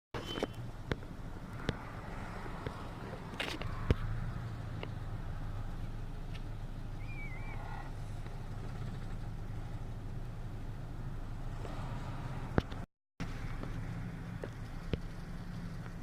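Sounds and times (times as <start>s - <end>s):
vehicle engine humming: 0.2s - 16.0s
warbling chirp: 7.0s - 7.9s.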